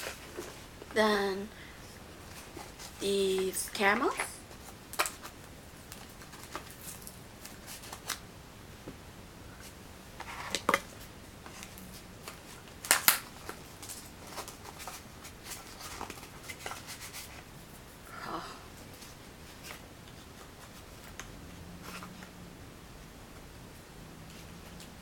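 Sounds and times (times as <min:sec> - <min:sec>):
packaging rustling and clicking: 0:11.5 - 0:17.2.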